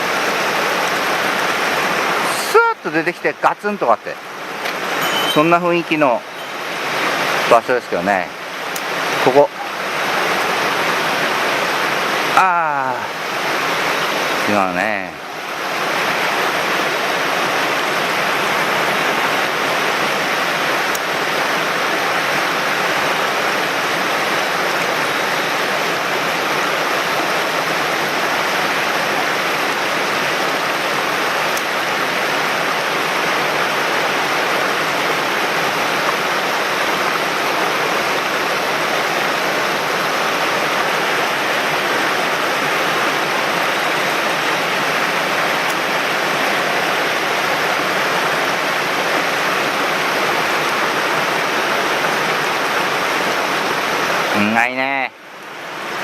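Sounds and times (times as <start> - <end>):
stream water running over rocks: 0.0 - 56.0.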